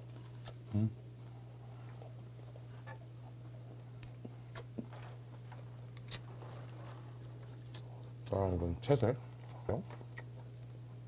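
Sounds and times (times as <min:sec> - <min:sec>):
closed-mouth chewing: 0:01.5 - 0:08.4, 0:09.3 - 0:10.8
small wet mouth clicks: 0:04.0 - 0:04.8.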